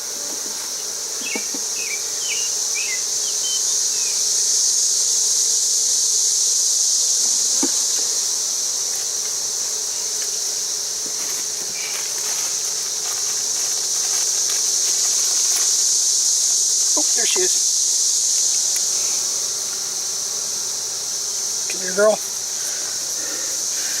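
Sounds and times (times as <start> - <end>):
high-pitched insect chorus: 0.0 - 24.0
honey bee colony humming: 0.0 - 24.0.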